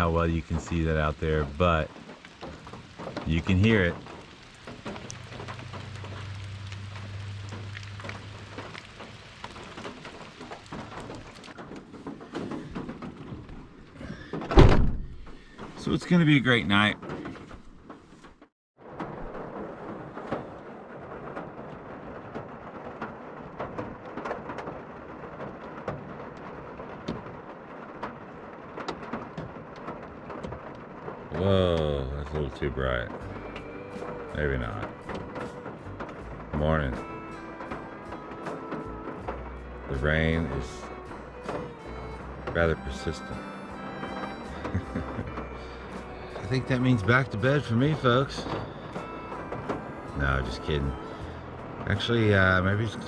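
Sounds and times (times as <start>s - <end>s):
low steady rumble: 0.0s - 10.3s, 32.0s - 53.0s
heavy rain falling: 0.0s - 17.4s, 18.8s - 53.0s
raindrops ticking on a van: 0.0s - 53.0s.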